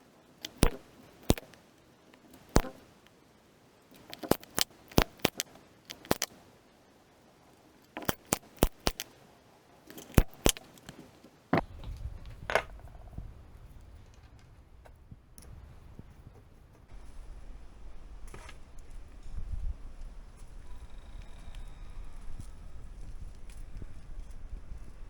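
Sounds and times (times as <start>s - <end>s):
sharp short clicks: 0.4s - 1.6s, 2.4s - 3.2s, 3.9s - 6.4s, 8.0s - 9.2s, 9.9s - 11.0s
low rumble of handling noise: 11.6s - 25.0s.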